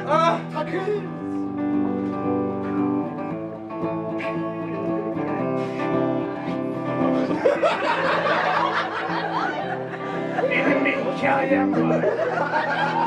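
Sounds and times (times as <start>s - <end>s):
guitar chords: 0.0s - 13.0s
people laughing: 6.4s - 13.0s
voices: 8.1s - 13.0s.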